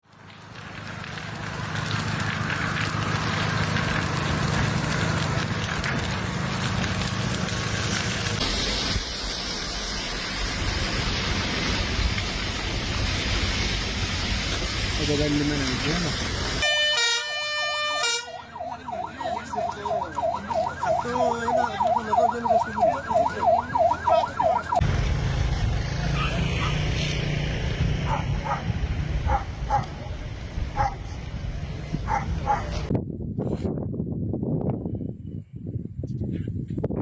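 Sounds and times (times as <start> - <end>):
sharp cracks: 0.1 - 10.4
siren yelping: 16.6 - 24.8
low rumble: 24.8 - 36.0.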